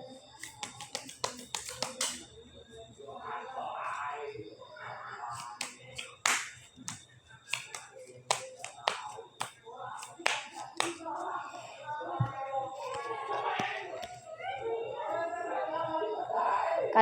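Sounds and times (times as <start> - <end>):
playing cards clicking and snapping: 0.4 - 2.3, 5.4 - 11.1.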